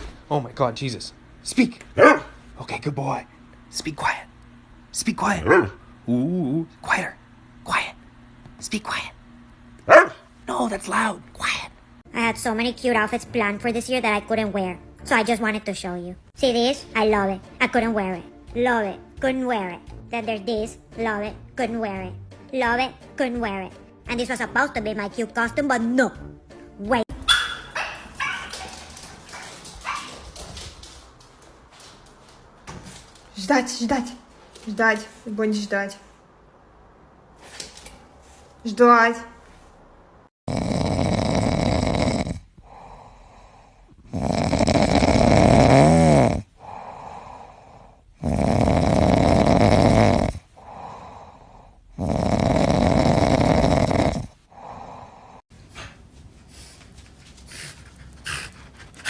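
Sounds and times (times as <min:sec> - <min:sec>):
dog barking: 0:02.0 - 0:02.4, 0:05.4 - 0:05.9, 0:09.8 - 0:10.3, 0:27.2 - 0:30.3
dog snoring: 0:40.5 - 0:55.4.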